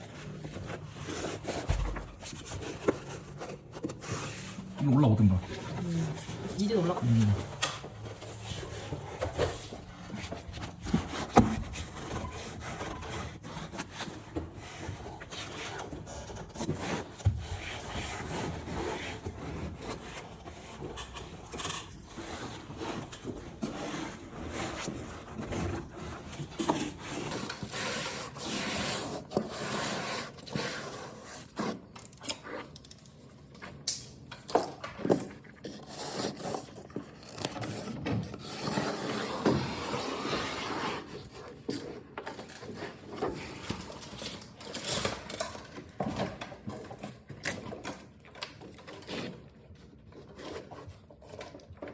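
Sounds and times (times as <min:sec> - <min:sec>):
rubbing and scraping over paper: 0:00.0 - 0:32.8, 0:35.0 - 0:51.9.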